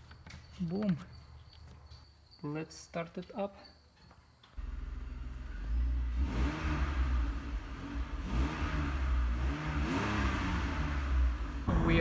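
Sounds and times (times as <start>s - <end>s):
car engine revving: 4.6s - 12.0s.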